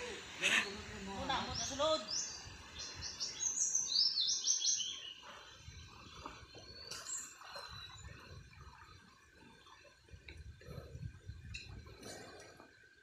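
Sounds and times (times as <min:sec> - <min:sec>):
bird chirping: 0:01.4 - 0:05.5.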